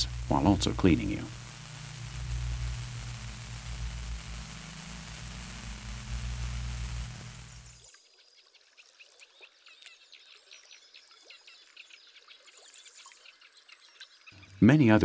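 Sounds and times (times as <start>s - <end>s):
steady hiss with low hum: 0.0s - 7.9s
faint birds chirping: 0.0s - 15.0s.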